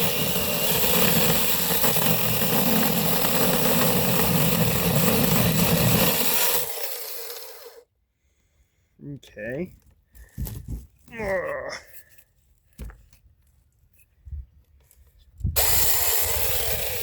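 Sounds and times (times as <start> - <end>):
mini chainsaw cutting log: 0.0 - 7.8, 15.6 - 17.0.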